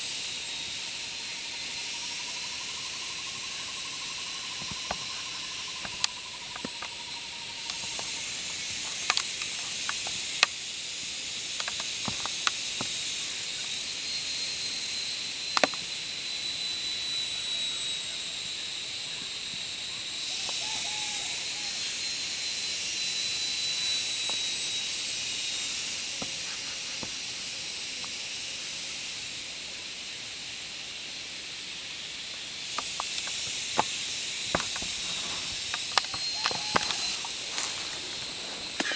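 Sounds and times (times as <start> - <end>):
insects chorus: 0.0 - 38.9
sharp clicks and snaps: 7.6 - 10.6, 15.5 - 15.8.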